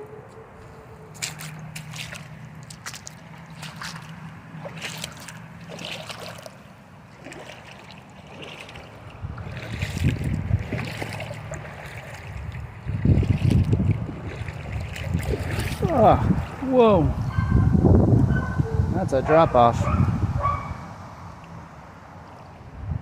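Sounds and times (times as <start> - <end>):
water splashing and trickling: 1.1 - 17.9
wind buffeting microphone: 8.3 - 21.0, 22.5 - 23.0.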